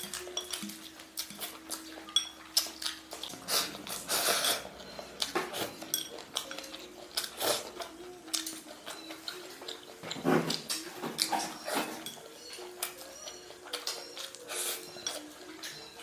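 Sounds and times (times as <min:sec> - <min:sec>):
utensils clinking against dishes: 0:00.0 - 0:16.0.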